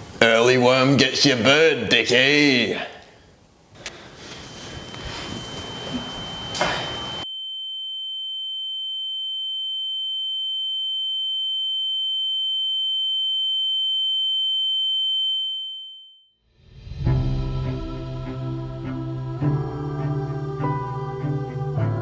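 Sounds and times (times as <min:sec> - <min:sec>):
high-pitched electronic tone: 0:04.6 - 0:07.3.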